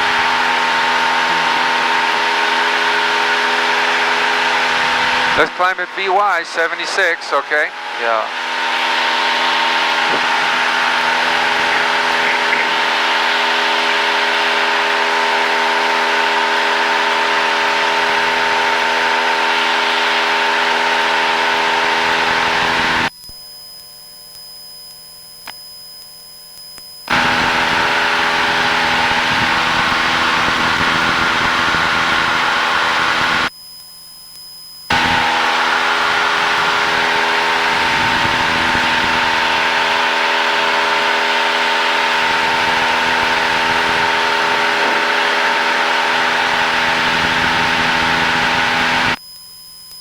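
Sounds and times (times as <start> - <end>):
plane engine and propeller drone: 0.0 - 23.1, 27.1 - 33.5, 34.9 - 49.2.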